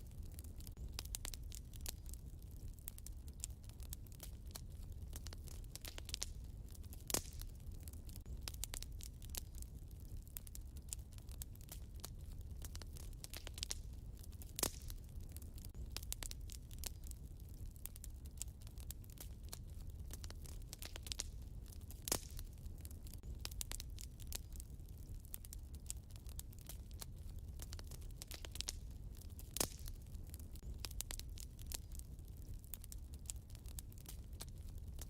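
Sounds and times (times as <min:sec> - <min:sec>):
fire crackling: 0:00.0 - 0:35.0
low rumble of fire: 0:00.0 - 0:35.0
loud fire pops: 0:00.1 - 0:35.0.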